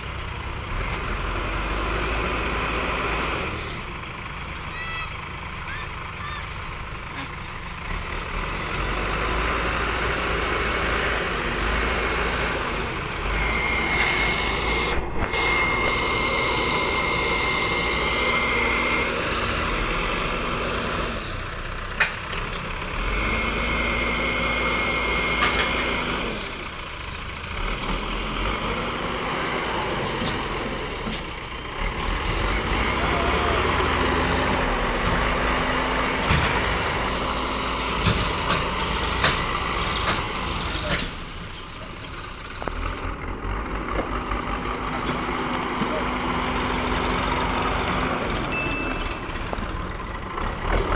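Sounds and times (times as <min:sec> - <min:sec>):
diesel engine running: 0:00.0 - 0:50.9
thin high whine: 0:13.3 - 0:19.3.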